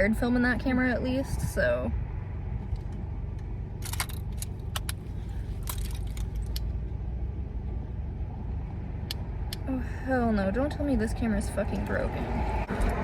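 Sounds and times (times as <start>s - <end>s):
car rumble: 0.0s - 13.0s.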